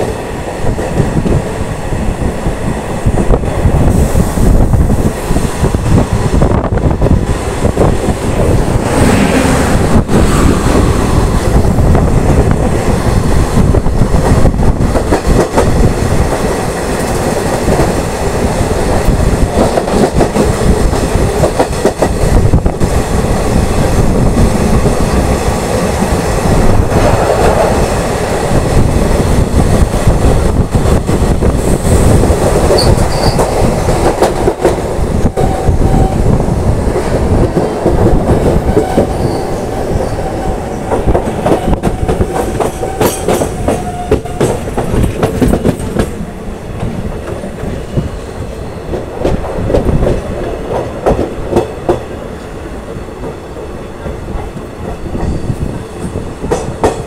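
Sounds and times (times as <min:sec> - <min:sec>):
train wheels clattering over rail joints: 0:40.8 - 0:48.1.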